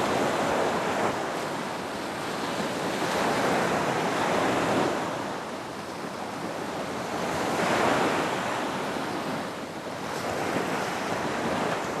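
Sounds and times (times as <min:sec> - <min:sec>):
ocean waves breaking on beach: 0:00.0 - 0:12.0.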